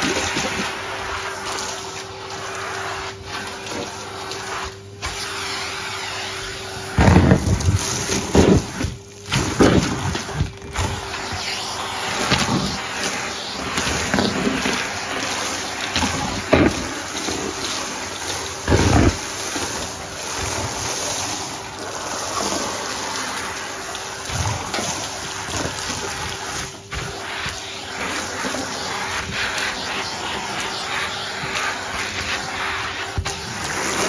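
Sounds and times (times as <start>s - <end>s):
vacuum cleaner motor hum: 0.0s - 34.0s.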